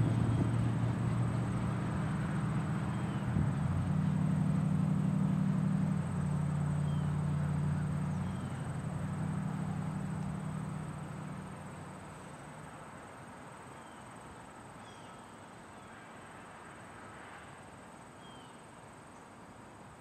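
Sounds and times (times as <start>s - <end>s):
freight train diesel drone: 0.0s - 12.1s.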